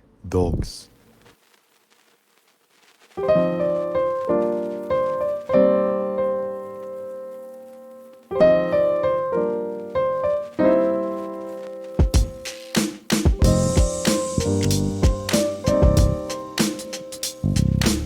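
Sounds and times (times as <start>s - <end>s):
piano chords ringing: 3.2s - 12.6s, 13.4s - 17.7s.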